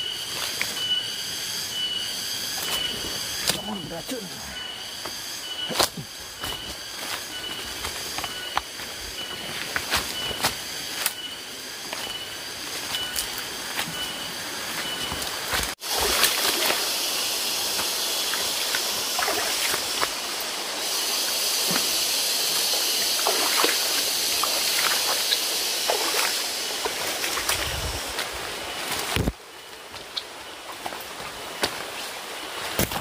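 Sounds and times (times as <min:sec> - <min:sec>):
steady high hiss: 0:00.0 - 0:32.9
water running and splashing: 0:15.8 - 0:28.4.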